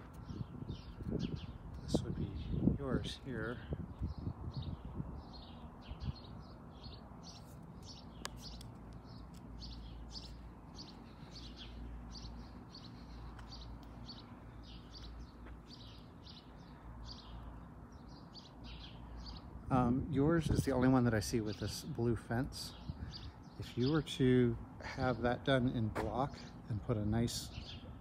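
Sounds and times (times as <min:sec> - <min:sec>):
small bird chirping: 0:00.0 - 0:19.5.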